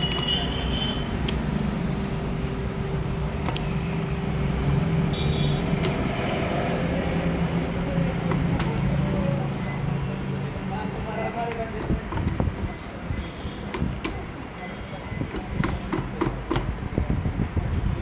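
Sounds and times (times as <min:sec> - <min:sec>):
sharp clicks: 0:05.8 - 0:06.2.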